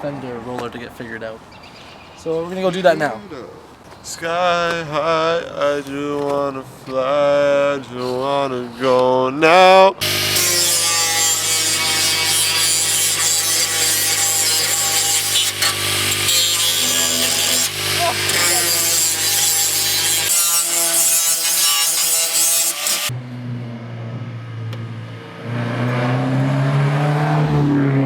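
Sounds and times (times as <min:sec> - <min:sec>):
power grinder grinding metal: 0:10.0 - 0:23.1.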